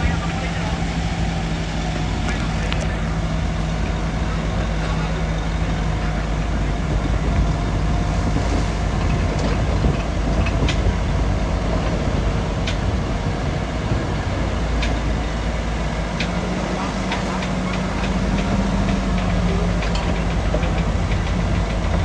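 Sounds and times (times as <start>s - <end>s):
bulldozer engine running: 0.0s - 22.0s
steel tracks clanking and squeaking: 0.0s - 22.0s.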